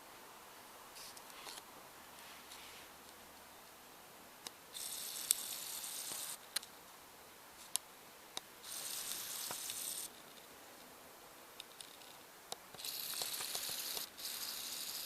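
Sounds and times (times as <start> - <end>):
high-pitched hissing bursts: 12.8 - 15.0.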